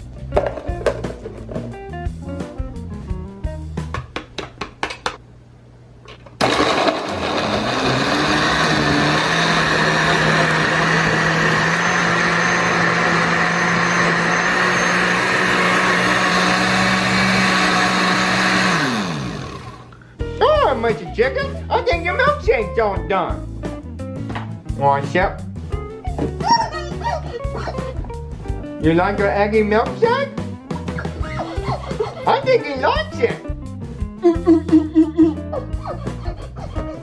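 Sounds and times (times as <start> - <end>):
blender running: 6.4 - 20.0.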